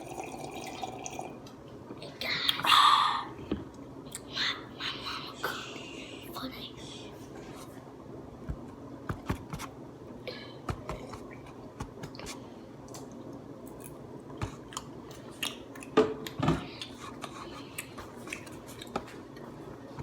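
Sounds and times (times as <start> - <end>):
person chewing food: 10.8 - 19.5.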